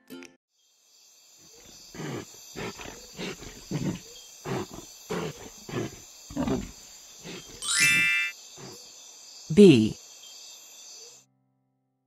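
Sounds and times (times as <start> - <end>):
bison grunting: 1.6 - 7.6.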